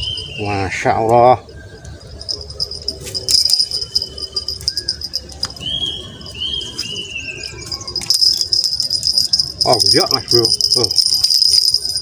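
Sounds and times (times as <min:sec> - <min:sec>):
bird whistled calls: 0:00.0 - 0:08.4
crickets droning: 0:00.0 - 0:12.0.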